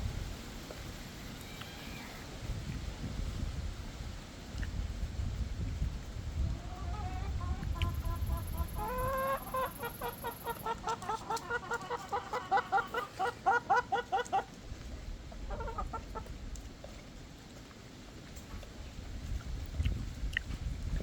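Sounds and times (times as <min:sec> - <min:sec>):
hens clucking: 0:06.3 - 0:16.6.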